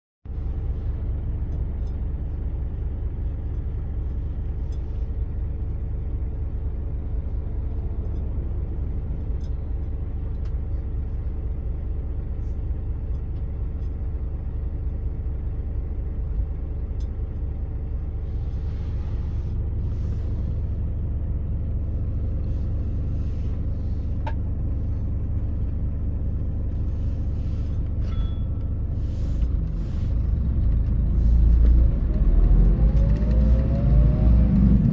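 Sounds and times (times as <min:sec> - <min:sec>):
coach diesel engine drone: 0:00.3 - 0:34.9
road noise: 0:18.0 - 0:24.9, 0:28.9 - 0:34.9.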